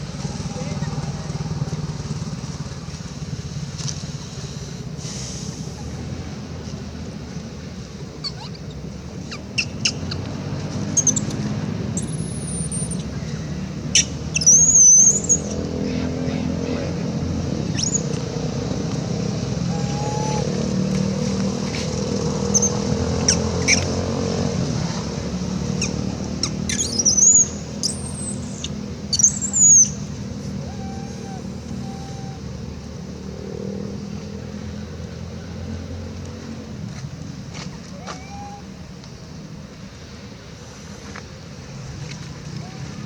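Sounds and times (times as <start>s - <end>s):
road traffic engine noise: 0.0s - 43.0s
monkey squealing cries: 8.2s - 8.7s, 13.9s - 16.5s, 17.7s - 18.0s, 19.6s - 20.6s, 22.5s - 23.9s, 25.8s - 29.9s, 30.6s - 32.5s, 38.0s - 38.7s.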